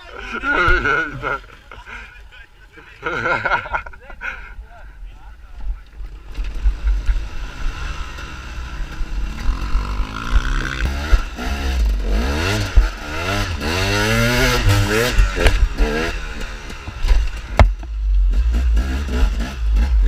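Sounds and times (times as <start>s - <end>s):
dirt bike engine revving: 6.1s - 17.6s, 18.2s - 20.0s.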